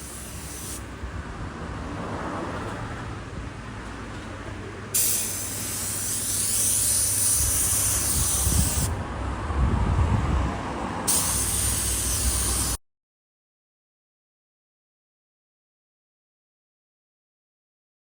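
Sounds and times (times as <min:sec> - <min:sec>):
spray hissing from a nozzle: 0:00.0 - 0:00.9, 0:04.9 - 0:09.0, 0:11.1 - 0:12.8.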